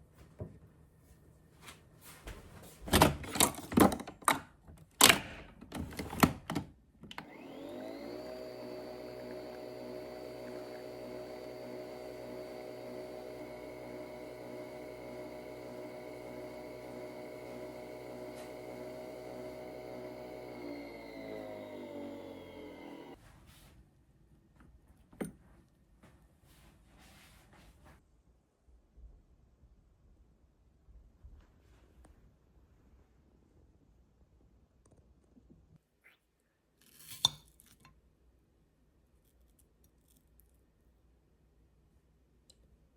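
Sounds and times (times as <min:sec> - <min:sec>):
electric blender running: 0:07.2 - 0:23.2.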